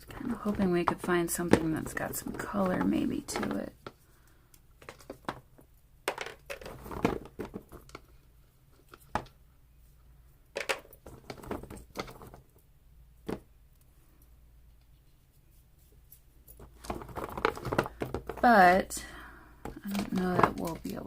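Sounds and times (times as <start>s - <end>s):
small hard items clicking and knocking: 0.0s - 8.2s, 10.5s - 12.5s, 16.5s - 21.0s.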